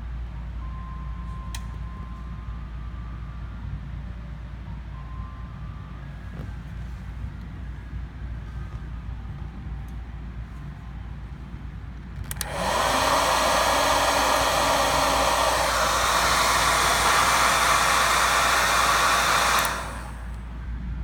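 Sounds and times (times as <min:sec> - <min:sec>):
dryer fan blowing air: 0:06.1 - 0:21.0.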